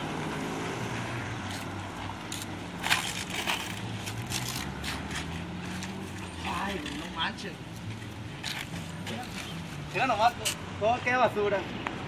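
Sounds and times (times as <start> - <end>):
sharp crunches and rustles: 1.4 - 10.6.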